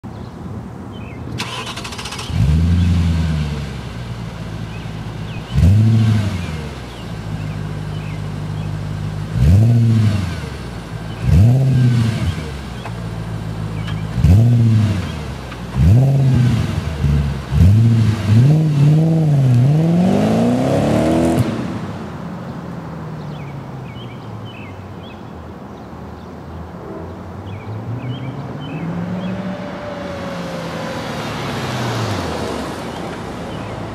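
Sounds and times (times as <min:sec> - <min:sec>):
car engine starting idling and revving: 0:01.4 - 0:22.0.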